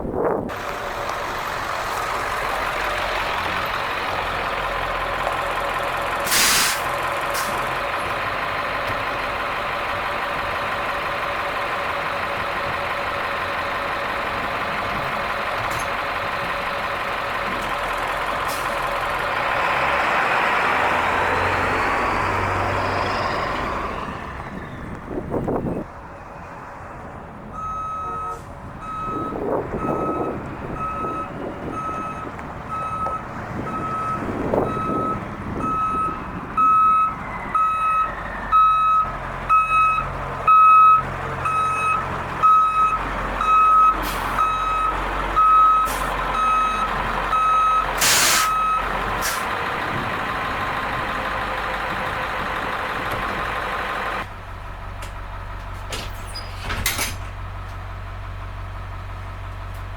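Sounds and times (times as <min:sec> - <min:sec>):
diesel engine running: 0:00.0 - 0:59.9
air hiss: 0:06.2 - 0:07.6, 0:48.0 - 0:48.6
reverse alarm beeping: 0:27.6 - 0:48.9.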